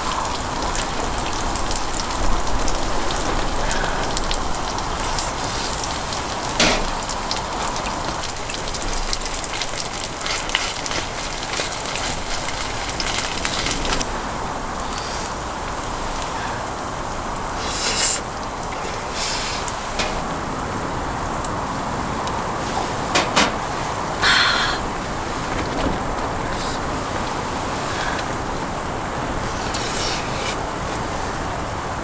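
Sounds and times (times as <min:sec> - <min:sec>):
pancake sizzling in oil: 0:03.8 - 0:14.2.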